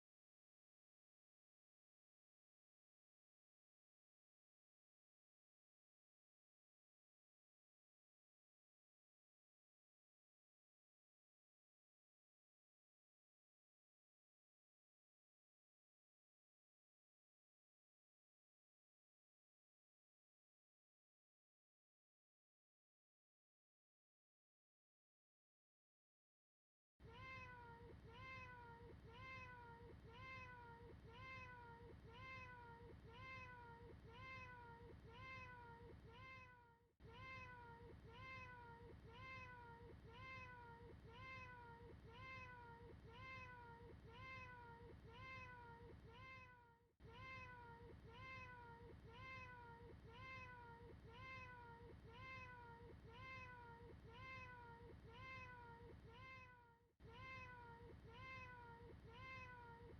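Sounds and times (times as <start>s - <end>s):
faint cat meow: 27.0s - 59.9s.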